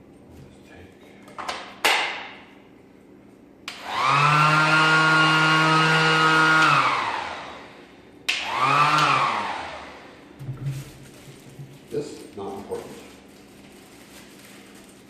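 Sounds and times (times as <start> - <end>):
orbit sander motor whine: 3.7 - 7.8, 8.4 - 10.1.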